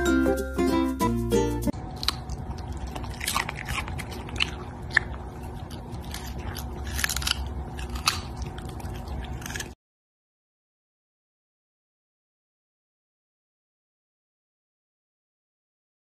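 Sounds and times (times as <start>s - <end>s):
dog crunching a carrot: 1.8s - 9.8s.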